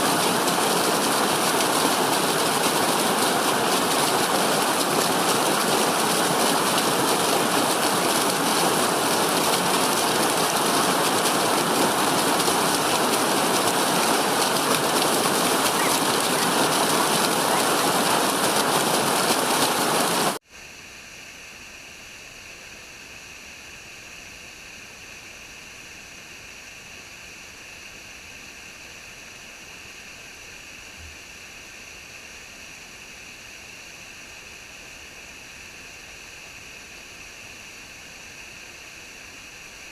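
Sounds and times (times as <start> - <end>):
rushing water hiss: 0.0 - 39.9
thin steady hiss: 20.4 - 39.9.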